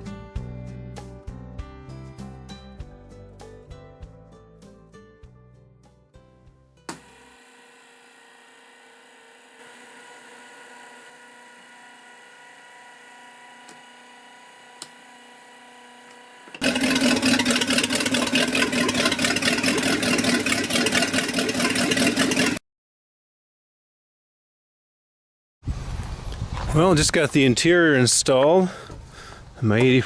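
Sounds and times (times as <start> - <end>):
boat engine running: 16.6 - 22.6.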